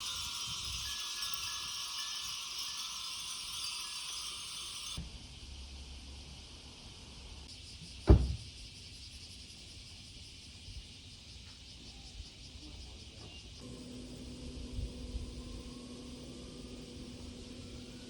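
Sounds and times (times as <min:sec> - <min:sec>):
insects buzzing: 0:00.0 - 0:18.0
loud low thump: 0:08.1 - 0:08.5.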